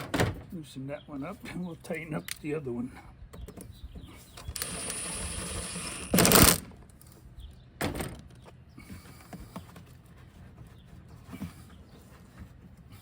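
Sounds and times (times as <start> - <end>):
ratchet tool whirring: 4.5 - 6.6.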